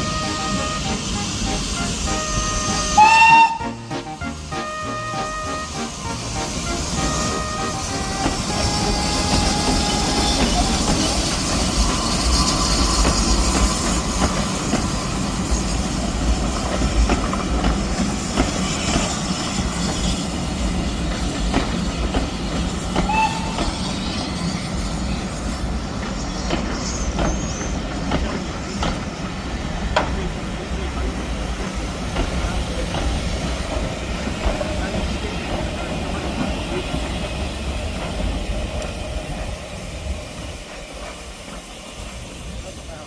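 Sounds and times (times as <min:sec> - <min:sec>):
steam train rumbling past: 0:00.0 - 0:43.0
wheels clicking over rail joints: 0:07.5 - 0:23.9, 0:25.6 - 0:39.2.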